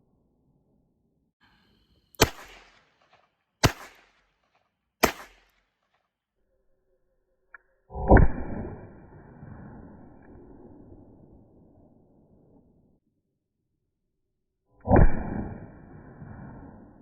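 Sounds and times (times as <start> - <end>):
revolver gunshots: 2.2 - 5.6.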